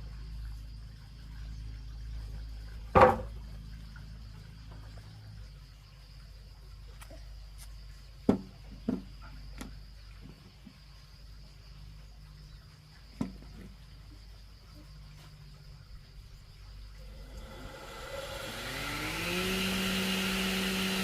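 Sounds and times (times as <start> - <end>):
high insect drone: 0.0 - 21.0
sharp knocks: 3.0 - 3.3.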